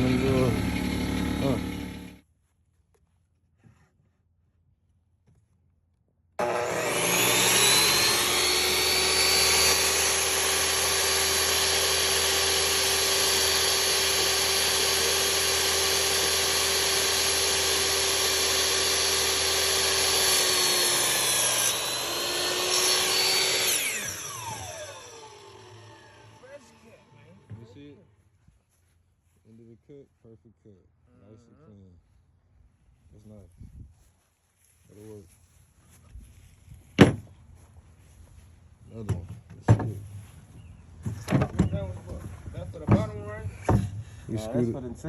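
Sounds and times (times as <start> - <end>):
miter saw whining: 0.0 - 2.2, 6.4 - 27.8
saw blade cutting wood: 0.0 - 2.2, 6.4 - 27.4.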